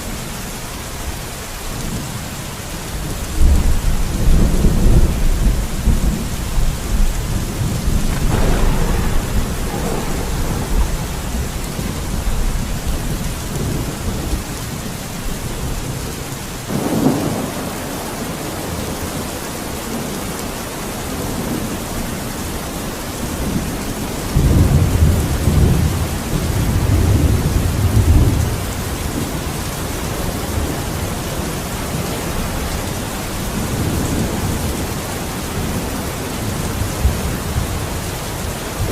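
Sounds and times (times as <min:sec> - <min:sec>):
steady rain: 0:00.0 - 0:38.9
rolling thunder: 0:03.0 - 0:20.5, 0:21.1 - 0:35.8.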